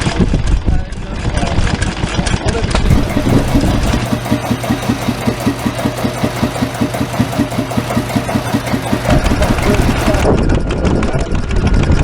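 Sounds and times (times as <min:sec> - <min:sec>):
small engine chugging: 0:02.8 - 0:10.5.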